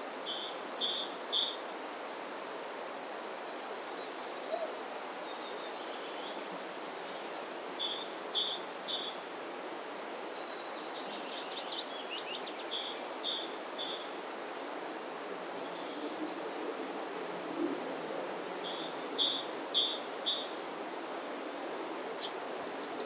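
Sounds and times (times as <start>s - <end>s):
songbirds calling: 0.2s - 1.9s, 3.8s - 14.7s, 18.6s - 20.7s, 22.1s - 23.0s
steady wind noise: 14.2s - 23.0s.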